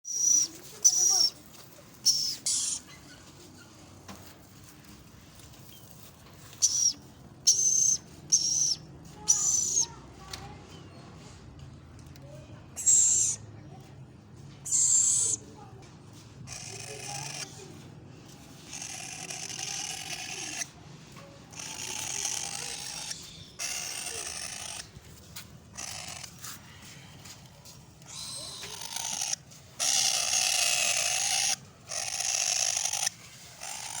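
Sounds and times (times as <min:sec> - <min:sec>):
bird chicks raspy calls: 0:00.1 - 0:01.4, 0:02.0 - 0:03.8, 0:05.7 - 0:10.0, 0:16.5 - 0:17.6, 0:18.6 - 0:20.8, 0:21.5 - 0:25.0, 0:25.7 - 0:27.2, 0:28.0 - 0:34.0
shrill screeches: 0:28.0 - 0:34.0.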